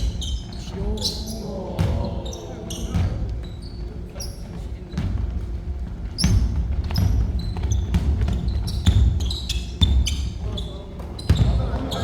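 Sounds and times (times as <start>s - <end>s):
sneaker squeaks on floor: 0.0s - 5.2s, 6.0s - 12.0s
basketball bouncing on court: 1.8s - 2.2s, 6.2s - 10.3s, 11.0s - 12.0s.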